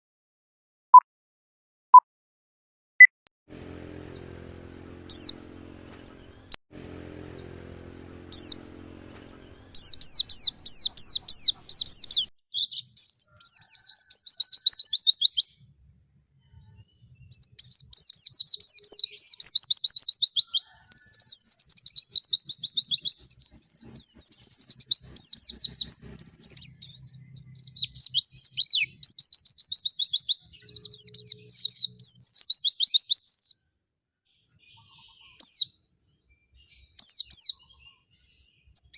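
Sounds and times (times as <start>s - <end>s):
low steady hum: 3.5s - 12.3s
bird twittering song: 3.6s - 15.6s, 16.5s - 33.6s, 34.3s - 38.9s.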